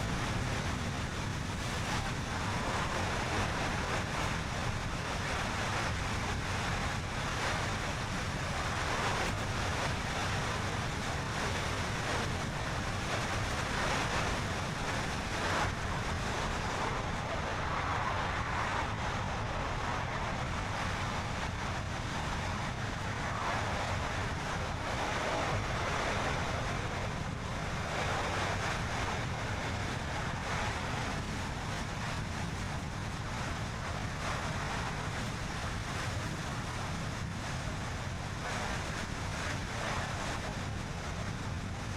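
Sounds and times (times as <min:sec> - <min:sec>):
tyres rumbling on road: 0:00.0 - 0:17.0
wind rushing past car: 0:00.0 - 0:41.9.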